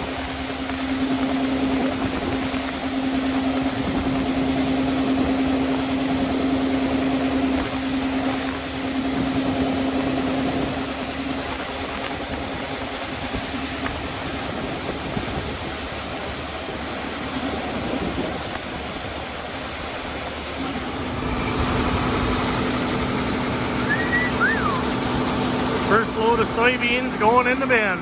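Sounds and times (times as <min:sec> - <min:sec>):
constant rushing noise: 0:00.0 - 0:28.0
farm machinery engine running: 0:00.0 - 0:28.0
droning engine note: 0:20.6 - 0:28.0.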